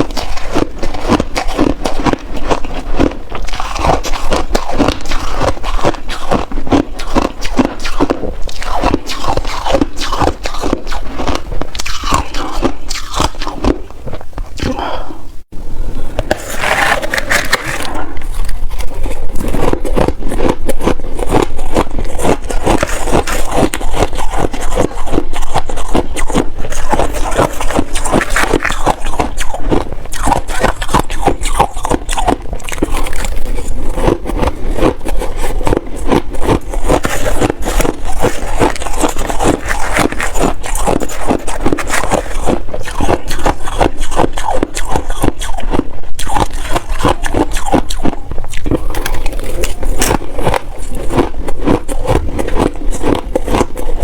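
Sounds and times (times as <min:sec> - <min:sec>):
shaved ice being crunched: 0:16.3 - 0:18.1, 0:19.4 - 0:53.7.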